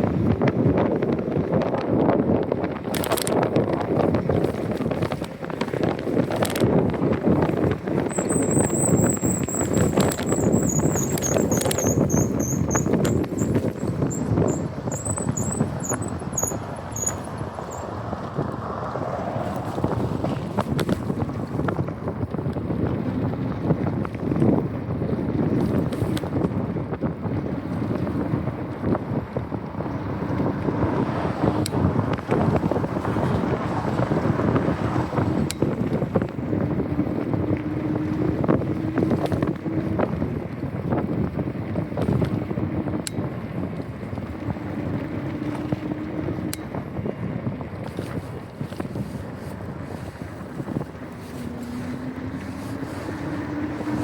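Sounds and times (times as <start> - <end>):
low road rumble: 0.0 - 54.0
wind buffeting microphone: 0.0 - 54.0
bicycle clicks and knocks: 0.3 - 18.5, 19.6 - 30.8, 34.1 - 54.0.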